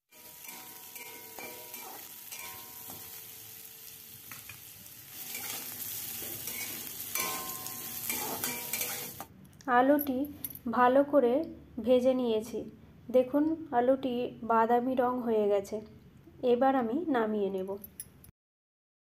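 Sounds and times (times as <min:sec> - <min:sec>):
metal spatula scraping a pan: 0:00.1 - 0:09.2
potato sizzling in hot oil: 0:00.1 - 0:09.3.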